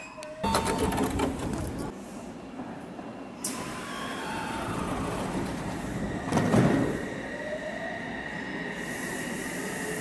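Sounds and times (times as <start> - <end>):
train air hiss: 8.3 - 10.0.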